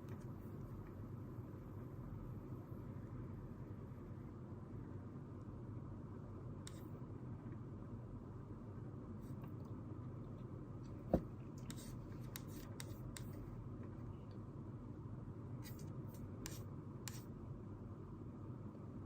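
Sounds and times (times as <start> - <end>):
faint room hum: 0.0 - 19.0
pen scratching while writing: 11.6 - 13.4, 15.6 - 17.3.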